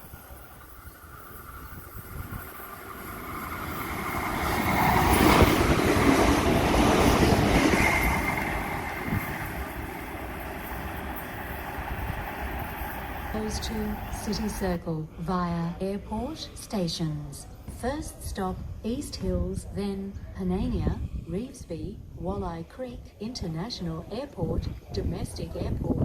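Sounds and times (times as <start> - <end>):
electric train passing: 0.0 - 14.9.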